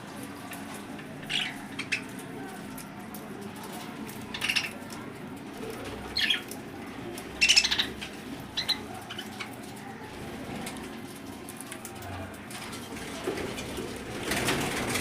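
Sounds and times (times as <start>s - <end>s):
lovebirds high calls: 1.1s - 2.6s, 4.1s - 5.0s, 5.8s - 6.6s, 7.4s - 9.8s.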